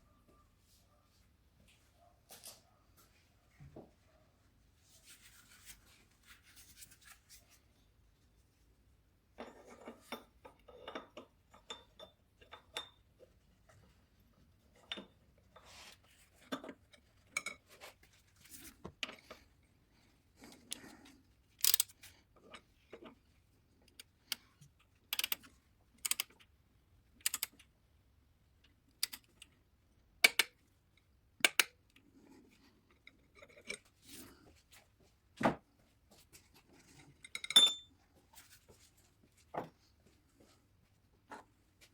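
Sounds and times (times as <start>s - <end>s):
metallic tool clinks: 37.4s - 37.9s.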